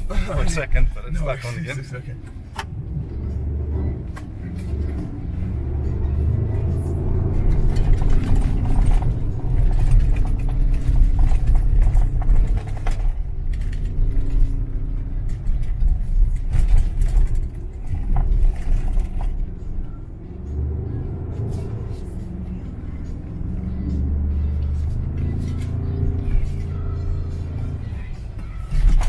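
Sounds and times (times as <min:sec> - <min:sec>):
truck driving over rough ground: 0:00.0 - 0:29.0
knocks and rattles: 0:07.2 - 0:19.6.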